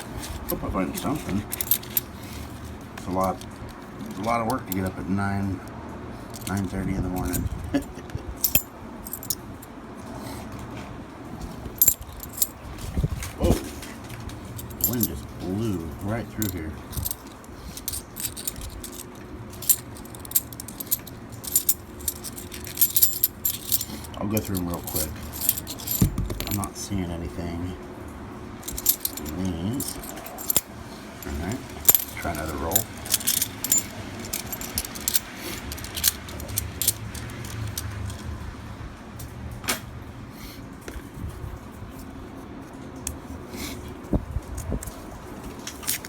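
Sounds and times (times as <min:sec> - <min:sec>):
low steady hum: 0:00.0 - 0:09.7, 0:11.5 - 0:38.4
coins clinking: 0:00.4 - 0:02.2, 0:06.3 - 0:09.4, 0:11.8 - 0:12.6, 0:14.4 - 0:26.7, 0:28.6 - 0:38.3.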